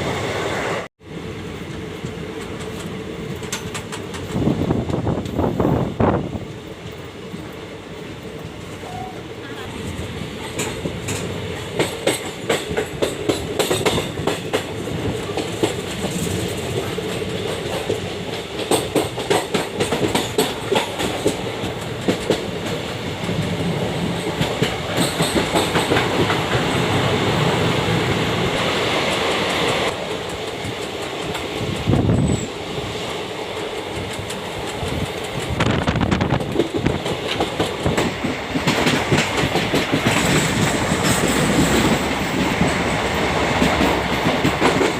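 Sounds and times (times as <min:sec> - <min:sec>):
train rumble: 0:00.0 - 0:44.9
train wheels clicking over rail joints: 0:01.6 - 0:05.6, 0:09.8 - 0:44.9.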